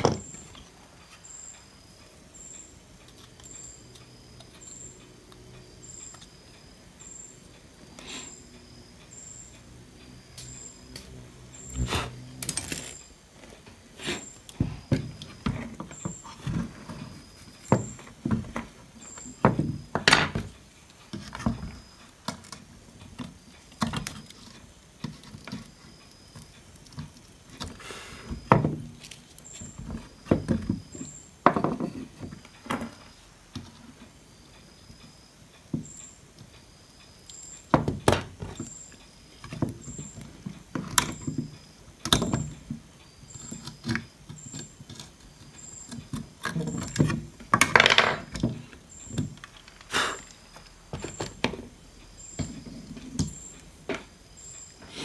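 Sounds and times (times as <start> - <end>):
hand tools clicking and knocking: 12.4 - 13.1.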